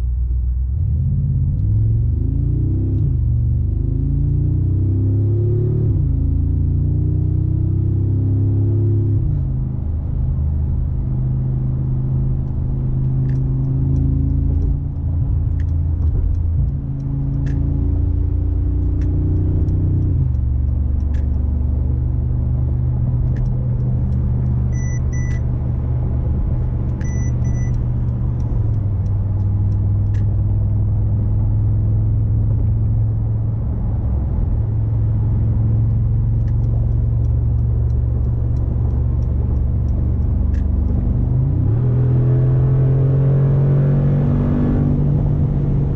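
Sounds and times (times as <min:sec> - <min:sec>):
car engine droning: 0:00.0 - 0:45.9
light clicks: 0:12.4 - 0:17.7
electronic beeps: 0:24.7 - 0:25.5, 0:27.0 - 0:27.8.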